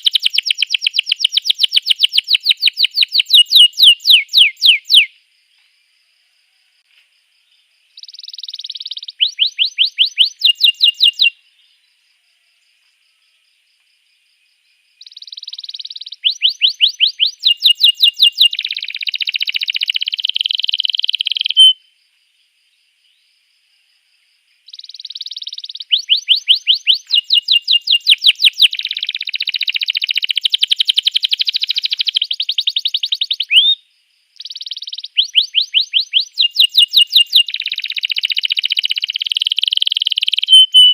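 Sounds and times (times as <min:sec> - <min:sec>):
canary singing: 0:00.0 - 0:05.1, 0:08.0 - 0:11.4, 0:15.0 - 0:21.8, 0:24.7 - 0:33.8, 0:34.4 - 0:40.9.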